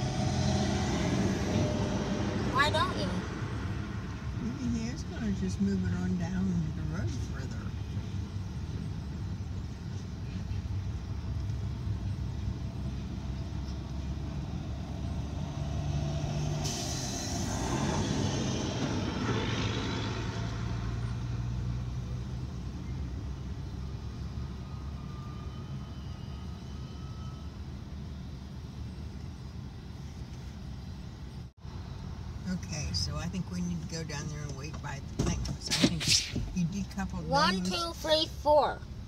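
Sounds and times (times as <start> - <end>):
freight train diesel hum: 0.0 - 15.5, 16.4 - 33.6, 36.0 - 39.0
air brakes hissing: 16.6 - 17.7.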